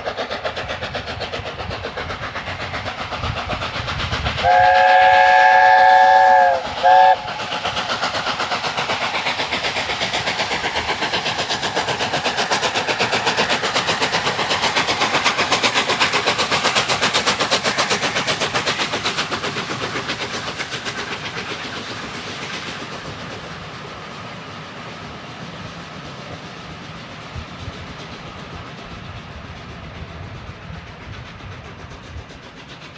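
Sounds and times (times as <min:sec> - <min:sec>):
steam locomotive exhaust beats: 0:00.0 - 0:32.9
steam locomotive whistle: 0:04.4 - 0:07.5.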